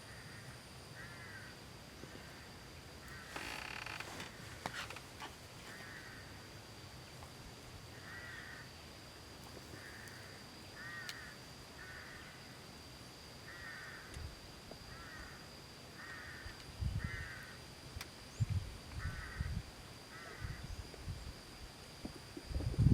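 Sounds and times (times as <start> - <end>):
crow cawing: 1.0 - 1.5, 3.1 - 4.3, 5.6 - 6.3, 8.0 - 8.7, 10.8 - 12.3, 13.5 - 14.1, 14.9 - 15.4, 16.0 - 17.6, 19.0 - 19.5.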